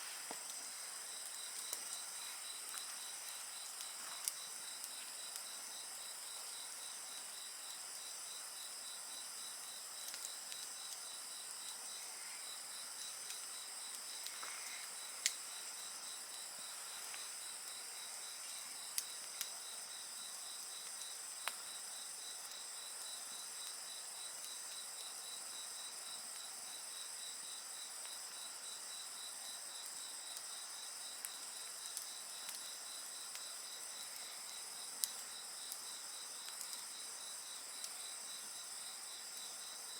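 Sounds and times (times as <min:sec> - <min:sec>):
campfire crackling and snapping: 0:00.0 - 0:25.6, 0:29.7 - 0:39.7
crickets and insects calling: 0:00.0 - 0:39.9.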